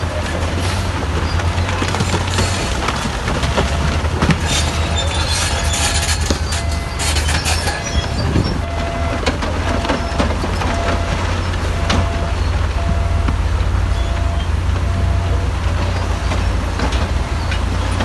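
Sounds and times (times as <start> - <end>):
bulldozer engine droning: 0.0 - 18.0
tracks clattering: 0.0 - 18.0
stones knocking and scraping: 1.2 - 6.6.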